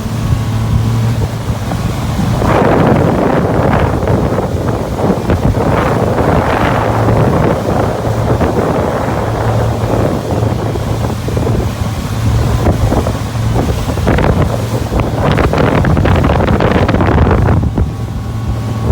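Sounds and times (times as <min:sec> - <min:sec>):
boat engine hum: 0:00.0 - 0:18.9
water rushing along hull: 0:00.0 - 0:18.9
wind buffeting microphone: 0:00.0 - 0:18.9.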